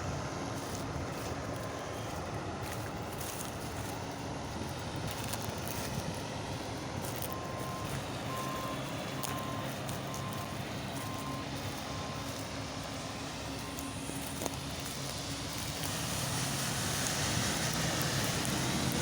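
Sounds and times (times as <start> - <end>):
diesel engine running: 0.0 - 19.0
reversing alarm beeping: 7.1 - 15.6.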